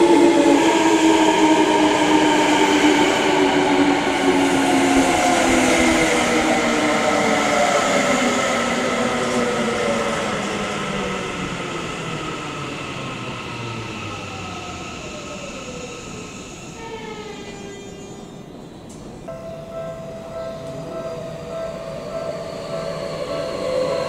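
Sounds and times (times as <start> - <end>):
electric train braking: 0.0 - 24.0
traction motors whining: 11.4 - 24.0.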